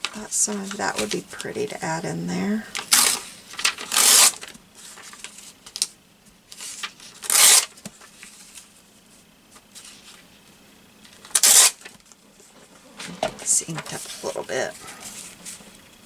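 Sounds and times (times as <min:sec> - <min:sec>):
paper handling: 0:02.7 - 0:08.8, 0:11.0 - 0:15.9
paper tearing: 0:02.8 - 0:05.2, 0:07.0 - 0:07.8, 0:11.2 - 0:12.0.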